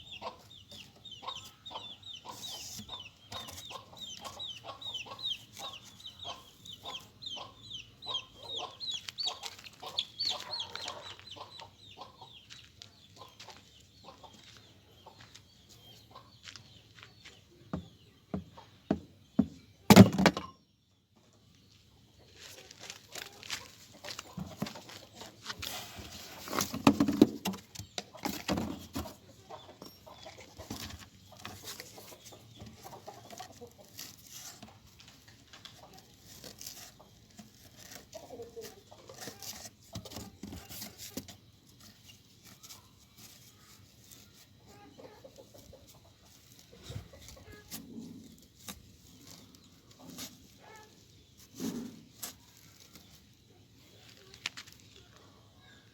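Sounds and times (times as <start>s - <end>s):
rustling: 30.6s - 44.8s.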